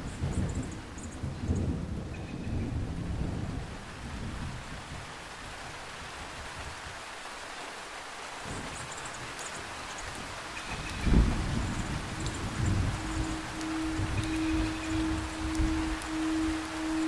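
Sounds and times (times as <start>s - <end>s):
low rumble of thunder: 0.0s - 5.2s, 10.2s - 17.0s
heavy rain falling: 0.0s - 17.0s.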